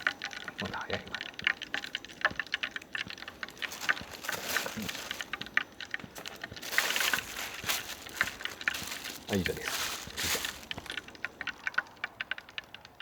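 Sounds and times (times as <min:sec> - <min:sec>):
hot oil crackling and sizzling: 0:00.0 - 0:13.0.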